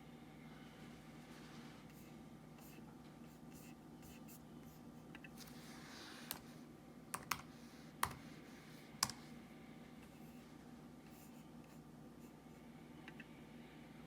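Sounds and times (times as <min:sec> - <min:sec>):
steady low hum: 0:00.0 - 0:14.0
computer mouse clicks: 0:06.3 - 0:06.5, 0:07.1 - 0:08.2, 0:09.0 - 0:09.2.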